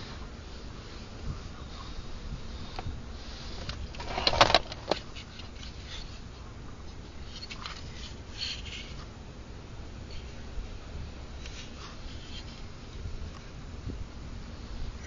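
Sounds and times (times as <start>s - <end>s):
faint scratching: 0.8s - 9.1s, 11.4s - 12.7s
handling clicks and rustling: 3.6s - 6.3s.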